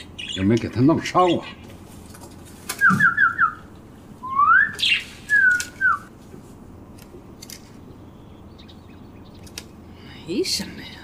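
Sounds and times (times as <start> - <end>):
caged songbird whistling: 2.8 - 6.1.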